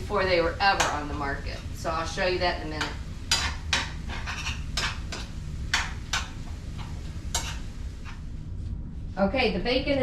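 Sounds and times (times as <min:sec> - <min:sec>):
steady low hum: 0:00.0 - 0:10.0
dishes and utensils clinking: 0:02.8 - 0:07.7.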